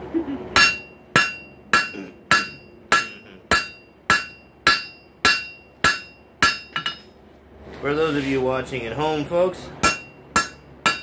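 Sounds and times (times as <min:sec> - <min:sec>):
hammer striking metal on anvil: 0:00.6 - 0:07.2, 0:09.8 - 0:11.0.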